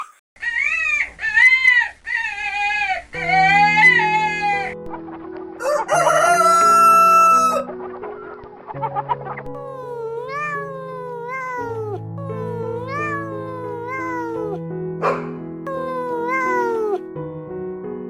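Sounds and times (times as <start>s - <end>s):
roosters crowing: 0.4s - 4.6s, 5.6s - 7.7s
background music: 3.2s - 18.0s
long high animal call: 9.6s - 17.0s.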